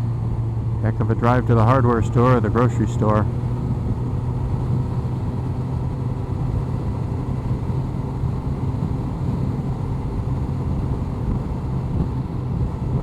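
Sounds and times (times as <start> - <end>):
motorcycle engine cruising: 0.0 - 13.0
wind noise: 2.2 - 13.0.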